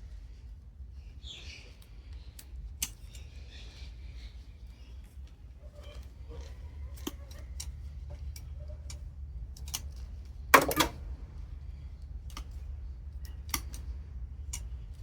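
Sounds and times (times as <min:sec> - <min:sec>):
metal parts clattering: 0:10.6 - 0:11.0.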